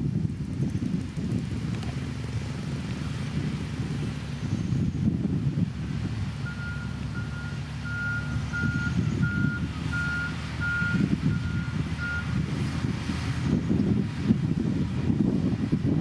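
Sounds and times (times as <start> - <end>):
diesel engine running: 0.0 - 16.0
reverse alarm beeping: 6.4 - 12.3.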